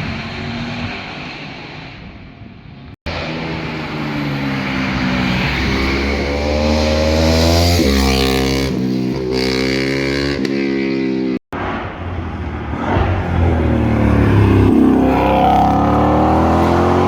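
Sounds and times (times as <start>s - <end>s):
car engine accelerating hard: 3.1s - 9.8s, 11.6s - 17.0s.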